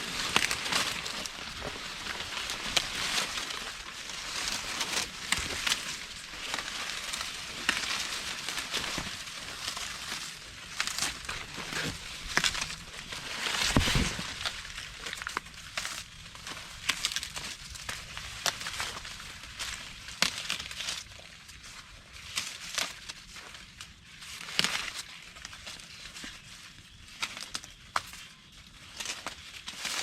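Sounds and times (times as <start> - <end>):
corn ears snapping: 0.0 - 21.4, 22.2 - 25.8, 27.2 - 28.3
dry corn plants rustling: 0.0 - 30.0
dull thump: 13.6 - 14.3.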